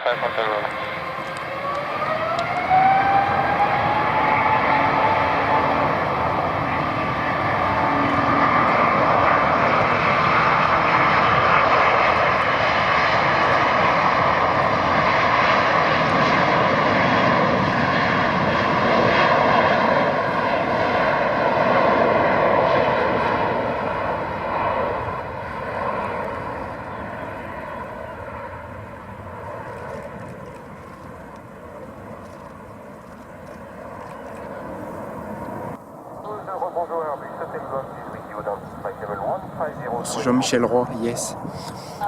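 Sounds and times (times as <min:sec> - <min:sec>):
jet engine roar at take-off: 0:00.0 - 0:42.0
faint whine: 0:26.2 - 0:41.4.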